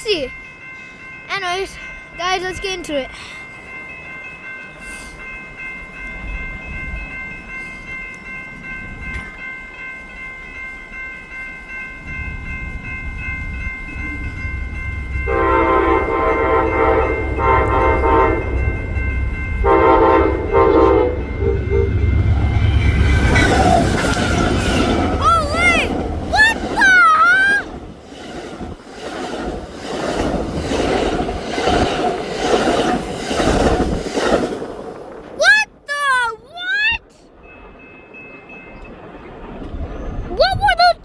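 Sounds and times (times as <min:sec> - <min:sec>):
steady high ringing: 0:00.0 - 0:34.3
train rumble: 0:00.0 - 0:35.4
train horn blasts: 0:15.2 - 0:19.0, 0:19.6 - 0:22.2.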